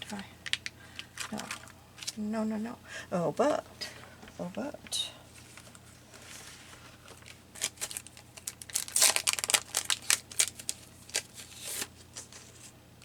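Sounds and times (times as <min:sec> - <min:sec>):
paper crinkling and rustling: 0:00.0 - 0:02.2, 0:05.3 - 0:12.8.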